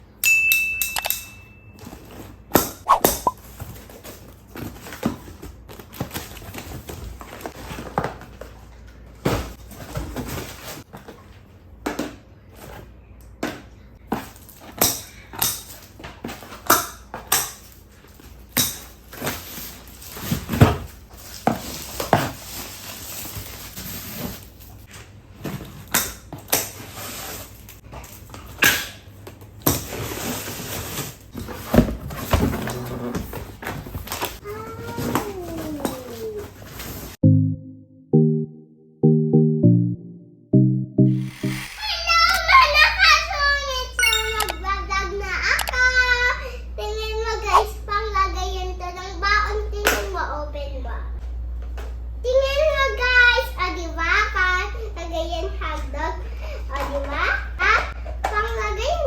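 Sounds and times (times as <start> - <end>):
short high tone: 37.2 - 42.5, 44.0 - 44.8.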